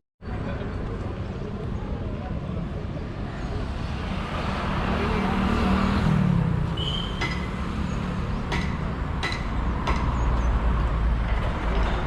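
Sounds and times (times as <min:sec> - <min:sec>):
road traffic rumble: 0:00.2 - 0:12.0.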